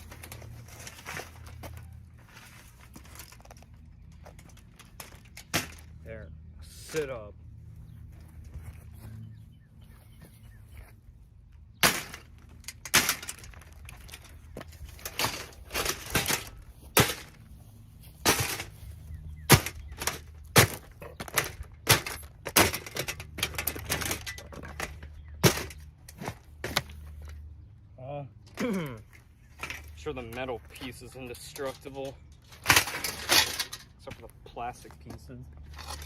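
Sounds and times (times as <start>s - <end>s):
hard blows smashing a fan: 11.8s - 13.6s, 15.0s - 17.4s, 18.2s - 18.7s, 19.5s - 24.3s.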